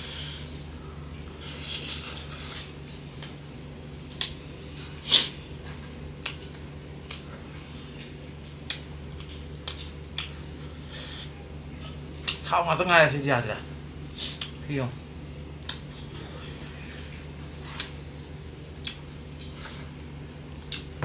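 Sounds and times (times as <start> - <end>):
steady low hum: 0.0 - 21.0
person chewing: 4.0 - 12.5, 15.6 - 18.1, 18.8 - 20.0, 20.6 - 21.0
wet lip smacks and mouth clicks: 6.2 - 7.3, 8.6 - 10.6, 15.6 - 16.1, 17.2 - 18.0, 18.8 - 19.6, 20.6 - 20.9.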